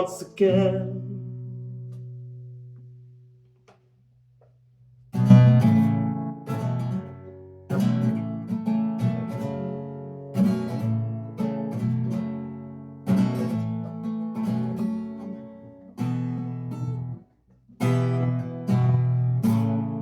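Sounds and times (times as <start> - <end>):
acoustic guitar strumming chords: 0.0 - 3.0, 5.1 - 17.2, 17.8 - 20.0.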